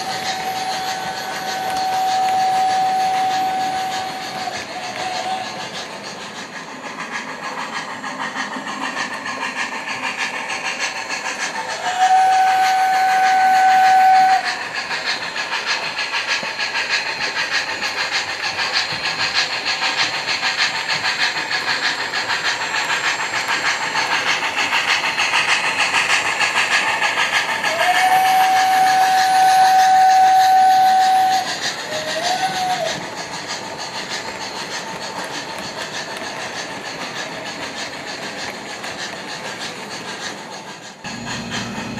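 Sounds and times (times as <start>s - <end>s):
steam whistle blowing: 0.0s - 5.6s, 11.7s - 14.7s, 27.6s - 33.0s
steam chuffing and hiss: 0.0s - 41.9s.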